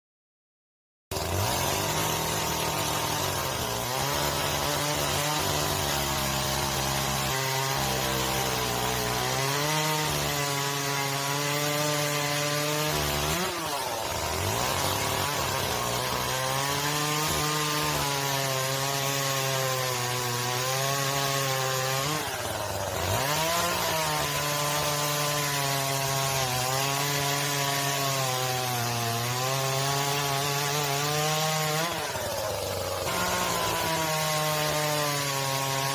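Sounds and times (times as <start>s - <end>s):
chainsaw cutting wood: 1.1s - 35.9s.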